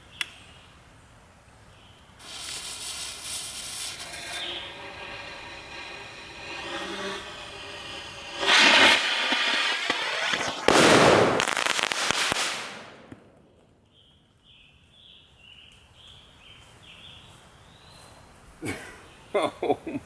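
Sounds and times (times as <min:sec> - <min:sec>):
rocket motor rush: 0:02.2 - 0:13.1
loud blast: 0:02.2 - 0:13.6.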